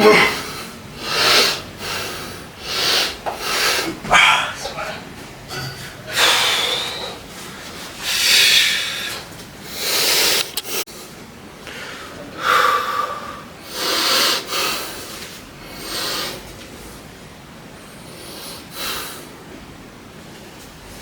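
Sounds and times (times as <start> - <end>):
person breathing hard: 0.0 - 10.8, 11.6 - 16.4.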